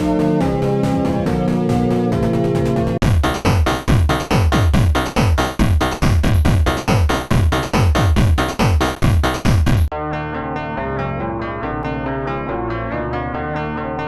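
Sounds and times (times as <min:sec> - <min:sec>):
electronic dance music: 0:00.1 - 0:09.9
deep kick drums: 0:03.0 - 0:09.9.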